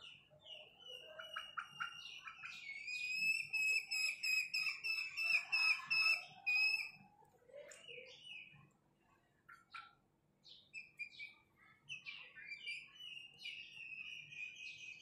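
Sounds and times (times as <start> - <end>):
bird chirps: 0.0 - 7.0, 9.5 - 15.0.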